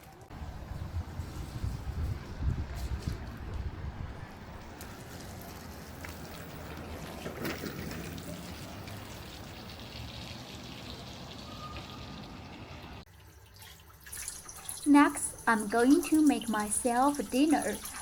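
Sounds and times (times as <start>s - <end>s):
rain falling: 4.5s - 13.0s
water trickling and dripping: 4.6s - 18.0s.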